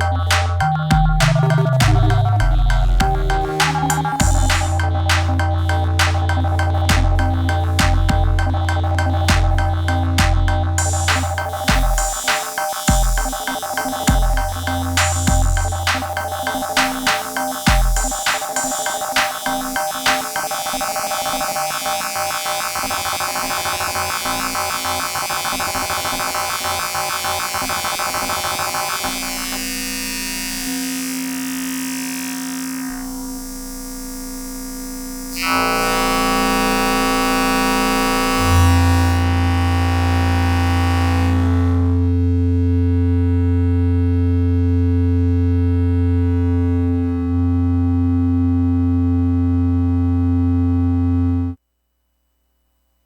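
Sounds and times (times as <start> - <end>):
deep bass tone: 0.0 - 12.2, 14.1 - 17.1, 33.0 - 51.6
pulsing buzzing synthesizer: 0.0 - 51.6
synthesizer drone tones: 0.0 - 51.6.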